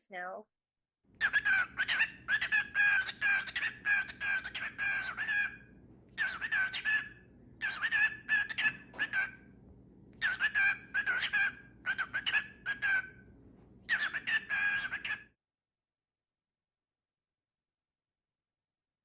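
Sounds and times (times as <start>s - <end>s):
bird chirping: 1.1s - 15.3s.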